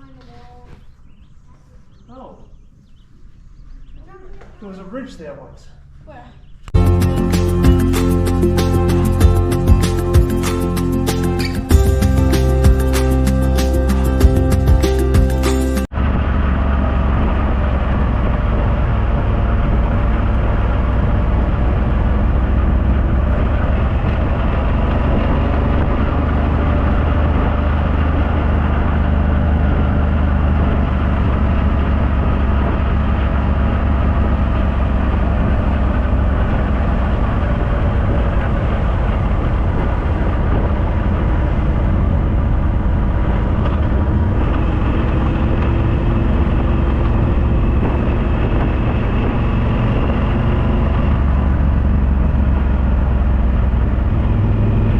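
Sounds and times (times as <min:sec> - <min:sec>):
motorcycle engine cruising: 0:05.8 - 0:54.9
wind rumble on microphone: 0:15.9 - 0:54.9.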